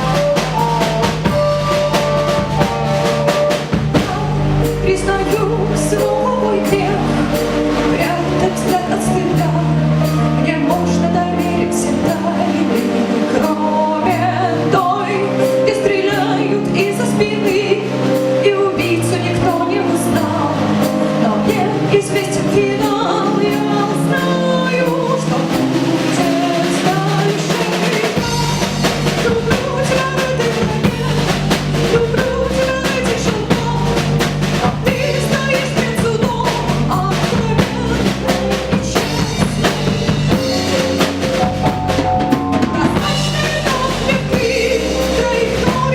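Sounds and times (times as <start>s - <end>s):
violin lead melody: 0.0s - 16.6s
bass: 0.0s - 45.9s
drum kit: 0.0s - 45.9s.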